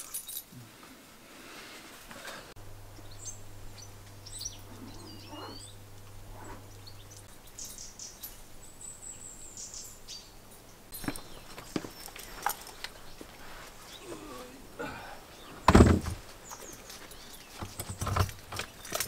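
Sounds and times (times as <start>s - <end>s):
faint low hum: 0.1s - 19.0s
small birds chirping: 2.4s - 19.0s.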